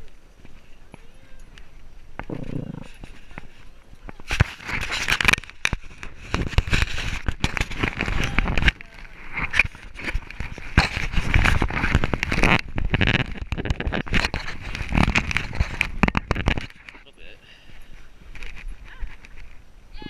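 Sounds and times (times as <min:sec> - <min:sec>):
dense clicks: 0:04.1 - 0:17.0
camera casing rubbing and jolting: 0:04.3 - 0:17.0.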